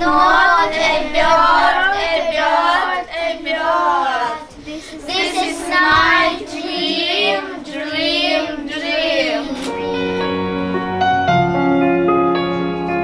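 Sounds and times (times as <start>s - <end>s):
child singing: 0.0s - 11.0s
piano music: 9.8s - 13.0s.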